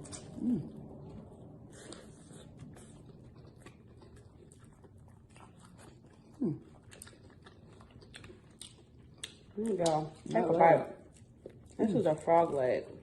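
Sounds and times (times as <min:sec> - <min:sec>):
food crunching being bitten: 0:00.0 - 0:11.8.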